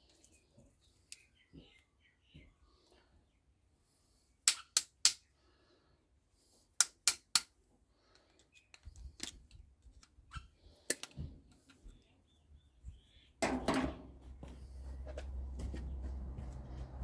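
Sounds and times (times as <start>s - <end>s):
sharp snapping clicks: 4.5s - 5.2s, 6.8s - 7.5s.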